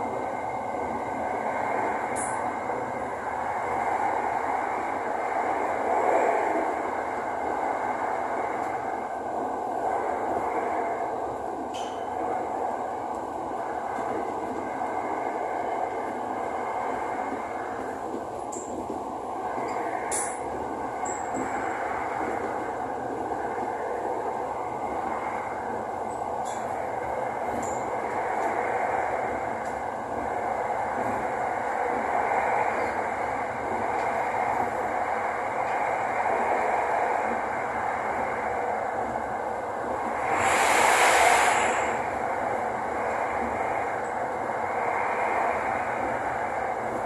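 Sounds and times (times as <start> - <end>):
train wheels rushing on rail: 0.0 - 47.0.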